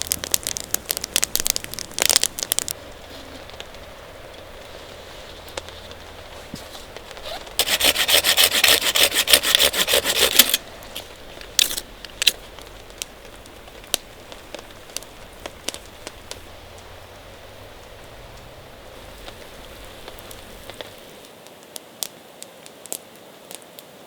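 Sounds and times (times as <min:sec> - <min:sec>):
rasping sawing strokes: 0:04.5 - 0:21.1.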